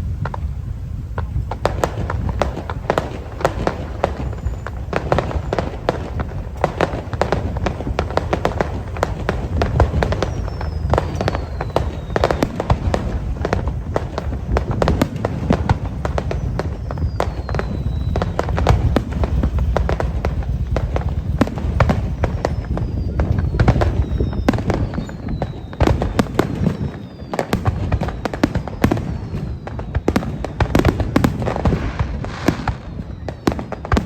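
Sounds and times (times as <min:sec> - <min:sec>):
falling firework whistles: 0:00.0 - 0:34.0
fireworks bangs and crackles: 0:00.0 - 0:34.0.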